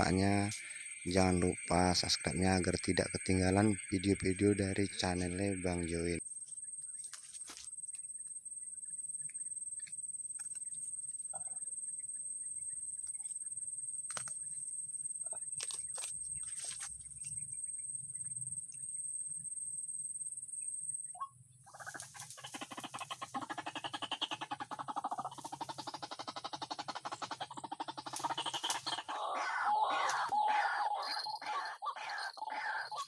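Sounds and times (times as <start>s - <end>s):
hands rustling vegetation: 6.9s - 8.0s.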